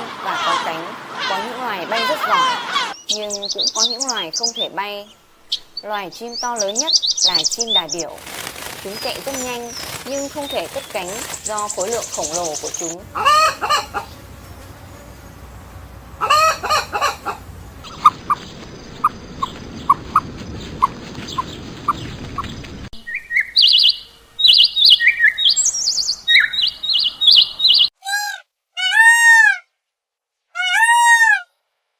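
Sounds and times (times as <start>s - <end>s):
chicken call: 0.0s - 3.0s, 9.9s - 18.4s, 26.3s - 29.6s, 30.6s - 31.5s
background noise: 0.0s - 19.8s, 22.9s - 31.9s
high songbird chirping: 0.0s - 27.9s
rise-and-fall bird calls: 0.0s - 28.3s
short evenly spaced peeps: 6.4s - 22.0s.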